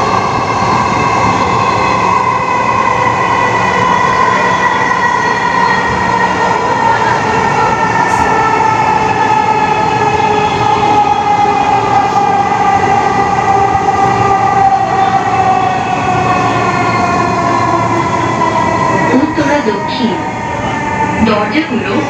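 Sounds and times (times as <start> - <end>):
metro train rumble: 0.0 - 22.0.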